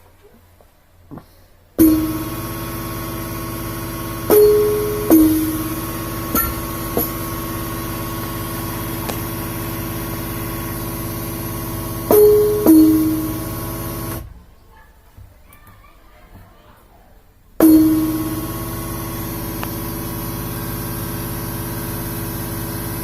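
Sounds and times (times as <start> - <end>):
electronic percussion pad hits: 1.8 - 14.2, 17.6 - 20.5
droning buzzy tone: 1.8 - 14.3, 17.6 - 23.0.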